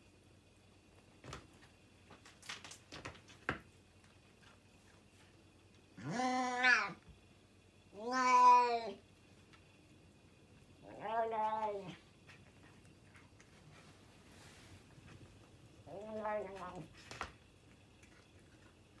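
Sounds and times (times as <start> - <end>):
cat meowing: 6.0 - 7.0, 8.0 - 9.0, 15.9 - 16.9.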